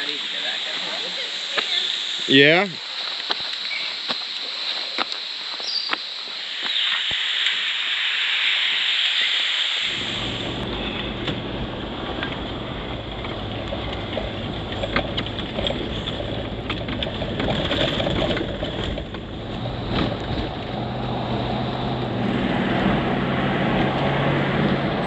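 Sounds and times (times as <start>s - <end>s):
road noise: 0.0s - 25.0s
car engine hum: 9.9s - 25.0s.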